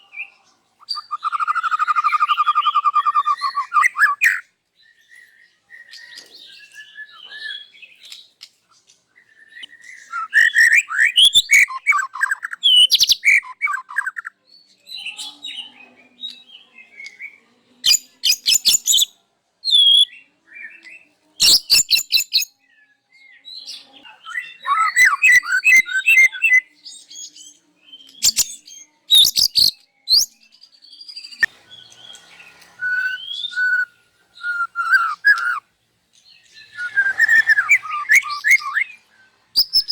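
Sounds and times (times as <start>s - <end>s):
bird singing: 0.0s - 8.4s, 9.2s - 14.4s, 21.6s - 39.9s.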